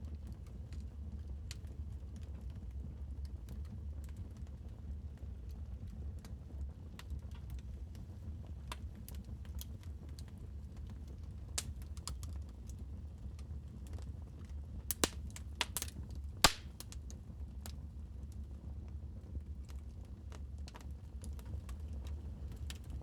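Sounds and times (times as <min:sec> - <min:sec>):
wood fire crackling: 0:07.0 - 0:18.4, 0:19.6 - 0:23.0.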